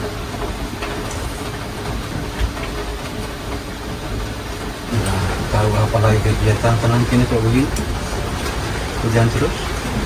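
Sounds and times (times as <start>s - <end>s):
heavy rain hissing: 0.0s - 10.0s.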